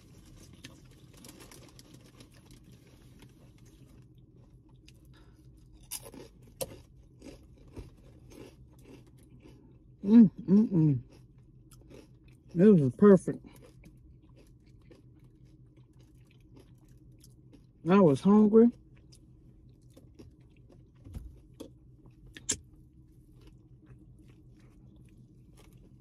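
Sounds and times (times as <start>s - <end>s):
person chewing sandwich: 0.0s - 17.8s, 18.7s - 26.0s.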